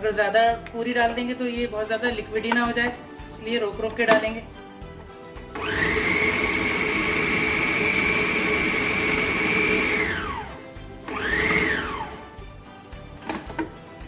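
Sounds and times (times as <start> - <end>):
food processor motor whining: 5.5 - 12.3.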